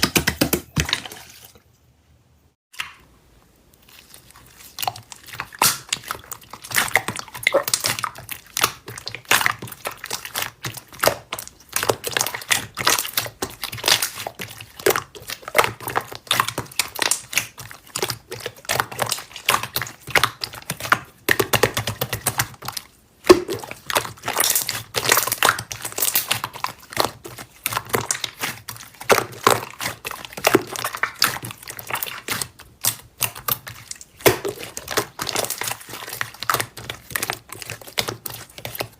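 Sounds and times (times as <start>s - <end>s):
slime squished by hand: 3.8s - 38.9s.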